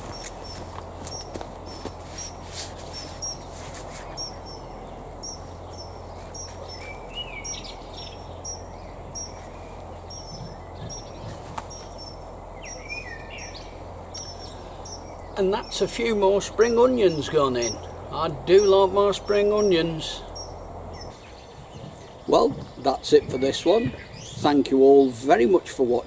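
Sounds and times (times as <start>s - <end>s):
small bird chirping: 0.0s - 25.2s
outdoor background noise: 0.0s - 26.0s.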